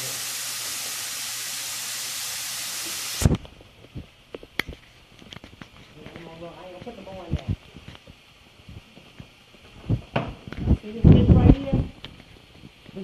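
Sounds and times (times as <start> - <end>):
chicken sizzling in hot oil: 0.0 - 3.3.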